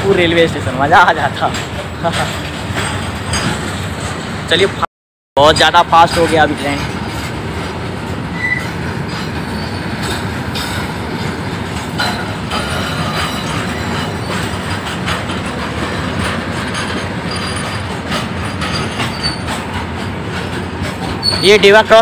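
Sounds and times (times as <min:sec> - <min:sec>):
clacks over rail joints: 0:00.0 - 0:22.0
train wheels rumbling on rail: 0:00.0 - 0:22.0
faint high wheel squeals: 0:08.3 - 0:10.2, 0:12.0 - 0:14.5, 0:16.6 - 0:19.6, 0:21.0 - 0:22.0.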